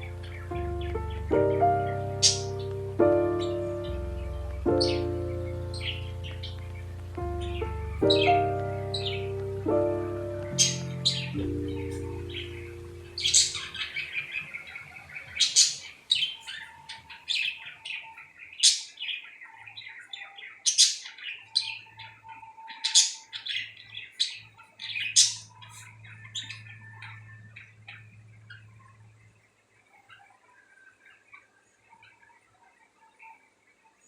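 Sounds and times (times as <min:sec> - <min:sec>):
music track: 0:00.0 - 0:14.4
lovebirds chirping and squawking: 0:00.0 - 0:33.6.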